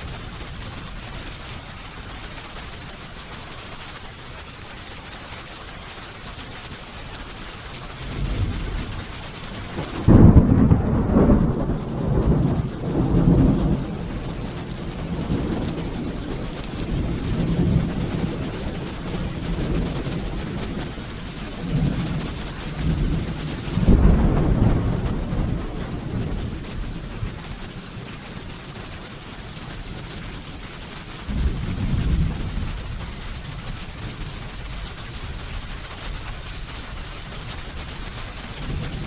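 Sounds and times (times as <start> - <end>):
steady rain: 0.0 - 39.0
thunder rumbling: 8.0 - 28.2, 31.0 - 35.9, 37.3 - 39.0.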